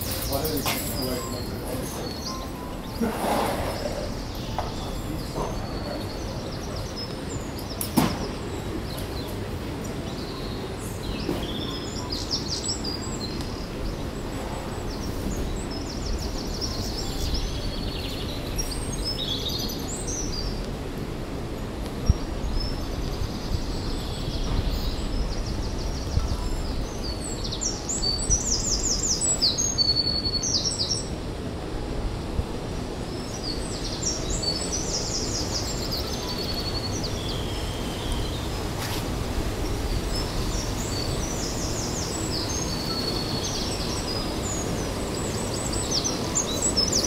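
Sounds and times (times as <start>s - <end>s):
birds chirping and singing: 0.0s - 20.7s, 32.9s - 47.0s
low outdoor background noise: 0.0s - 47.0s.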